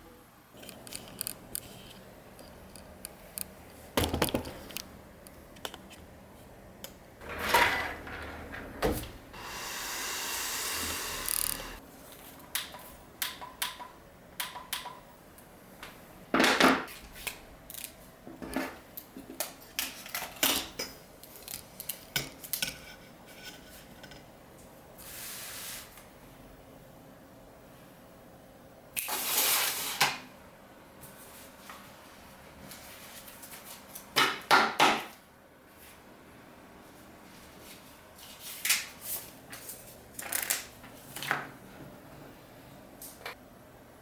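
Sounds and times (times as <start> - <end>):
steady hiss: 9.3 - 11.8.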